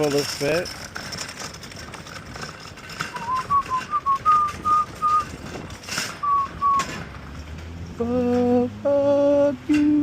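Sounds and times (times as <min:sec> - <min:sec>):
person whistling a tune: 0:03.2 - 0:05.3, 0:06.2 - 0:06.9.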